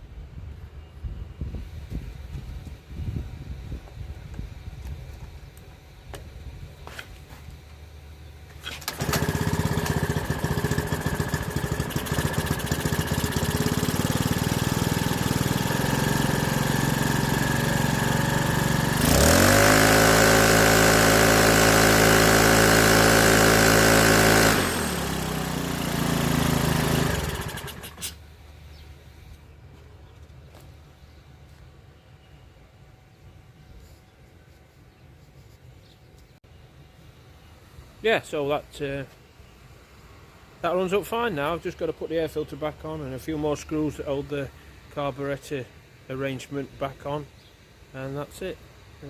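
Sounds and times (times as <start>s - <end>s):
leaf blower engine running: 8.7s - 28.2s.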